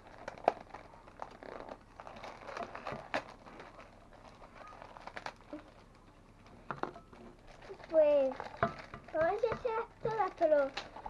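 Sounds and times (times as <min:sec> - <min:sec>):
plastic decorations clicking: 0:07.5 - 0:11.0.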